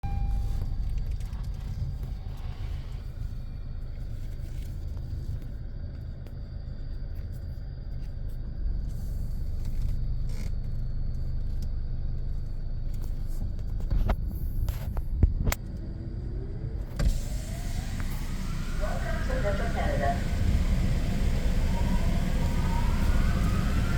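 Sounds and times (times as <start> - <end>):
car engine idling: 7.9 - 23.9.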